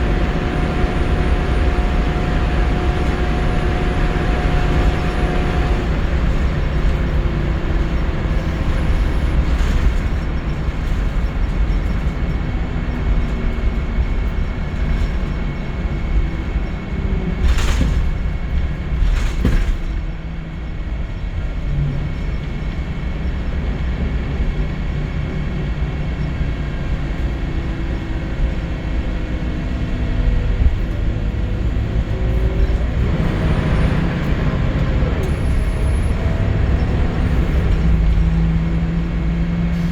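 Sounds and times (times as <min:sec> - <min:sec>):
bus engine pulling through gears: 0:00.0 - 0:39.9.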